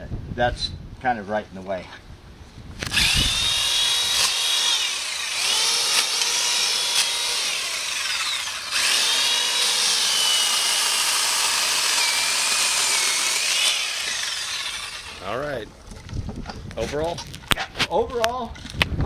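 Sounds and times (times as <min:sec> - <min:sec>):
electric chainsaw motor whining: 0:02.8 - 0:15.4.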